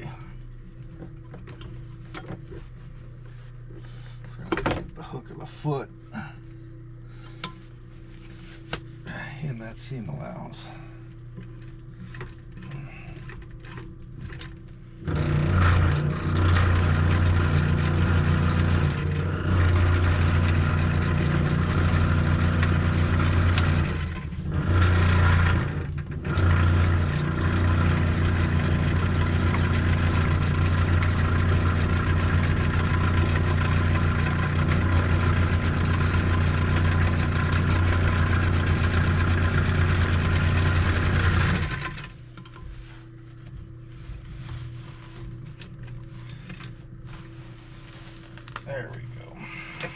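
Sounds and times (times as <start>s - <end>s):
faint steady hum: 0.0s - 49.9s
sewing machine stitching: 15.0s - 42.1s.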